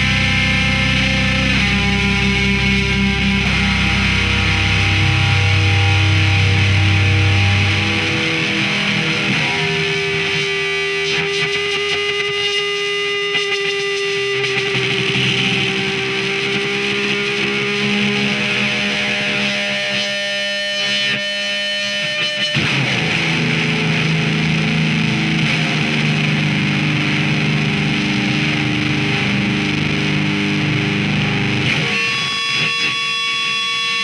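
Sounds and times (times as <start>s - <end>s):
distorted electric guitar music: 0.0s - 34.0s.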